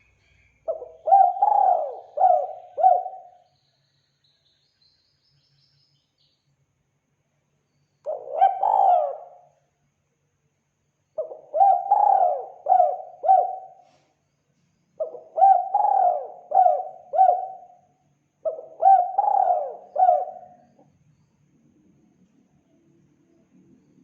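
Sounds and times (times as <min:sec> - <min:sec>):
dove cooing: 0:00.7 - 0:03.4, 0:08.1 - 0:09.4, 0:11.2 - 0:13.8, 0:15.0 - 0:17.7, 0:18.4 - 0:20.8.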